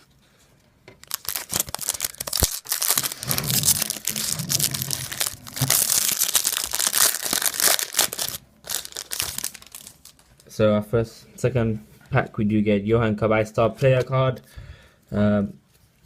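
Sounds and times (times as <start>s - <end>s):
foil wrapper crinkling and tearing: 1.0s - 10.5s.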